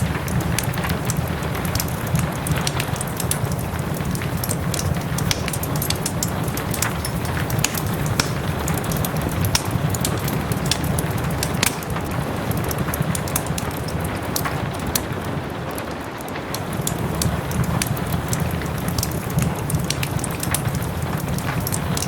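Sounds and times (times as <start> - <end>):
soft steady rain: 0.0 - 22.0
wood fire crackling and popping: 0.0 - 22.0.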